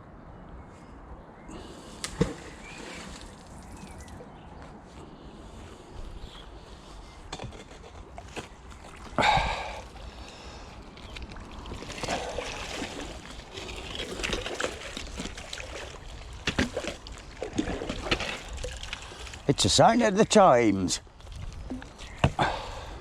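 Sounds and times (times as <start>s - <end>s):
sharp water splash: 2.0s - 4.2s, 11.5s - 19.4s
water sloshing and dripping: 2.0s - 4.3s, 9.8s - 19.6s.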